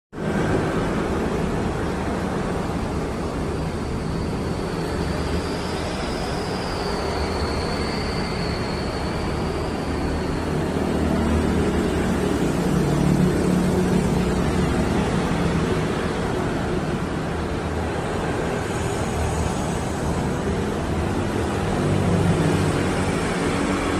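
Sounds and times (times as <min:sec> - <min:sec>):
faint high whistle: 0:03.6 - 0:11.1.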